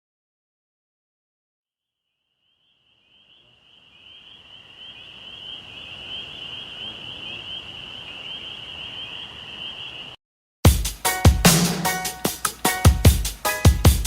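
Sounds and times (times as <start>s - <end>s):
chorus of trilling animals: 3.0s - 10.2s
electronic music with drums: 10.7s - 14.0s.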